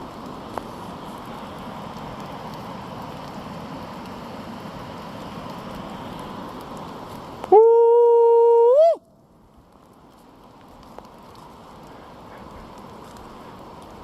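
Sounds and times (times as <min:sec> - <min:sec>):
rain hissing: 0:00.0 - 0:14.0
held hoot-like call: 0:07.5 - 0:09.0.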